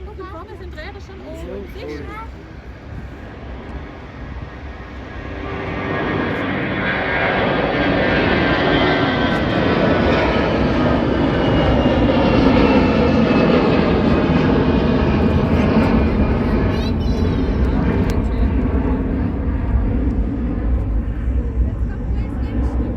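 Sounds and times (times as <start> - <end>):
turbofan engines at high thrust: 0.0 - 22.9.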